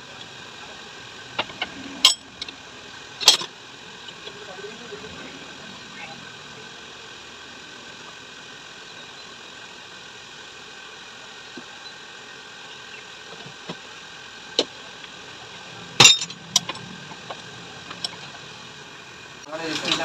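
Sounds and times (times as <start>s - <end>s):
steady background hum: 0.0s - 20.0s
metallic clinks and knocks: 16.0s - 16.9s.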